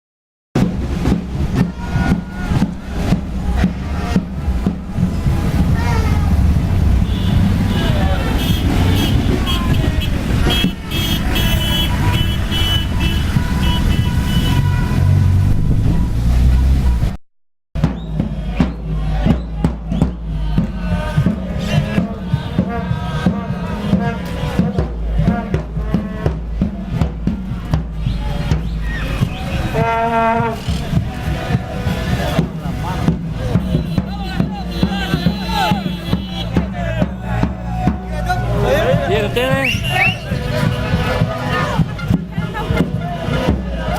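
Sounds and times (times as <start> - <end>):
drums beating: 0.6 - 16.1, 17.8 - 43.9
car horns honking: 6.8 - 16.8, 20.9 - 26.4, 28.0 - 43.9.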